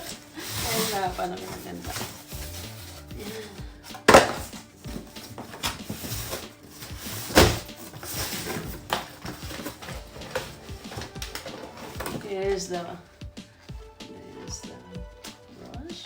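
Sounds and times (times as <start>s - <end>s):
cardboard packaging rustling: 0.0s - 13.0s
plastic parts knocking and clicking: 3.8s - 12.3s.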